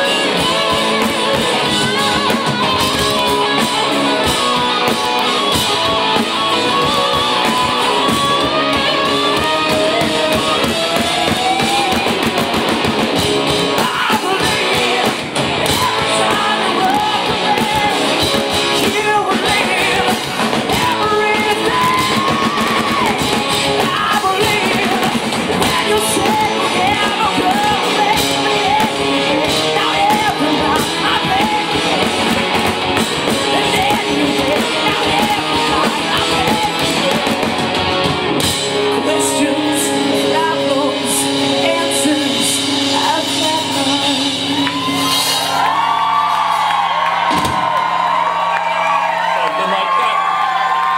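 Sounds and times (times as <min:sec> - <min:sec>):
woman singing: 0:00.0 - 0:05.6, 0:06.5 - 0:12.1, 0:13.7 - 0:32.4, 0:33.0 - 0:37.5, 0:38.9 - 0:45.0
hard rock band playing: 0:00.0 - 0:50.9.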